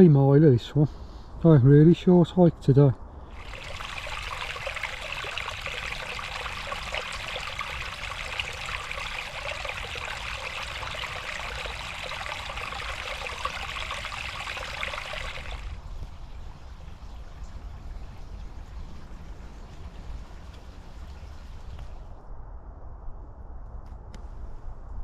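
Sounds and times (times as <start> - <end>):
stream trickling over stones: 3.2 - 17.6.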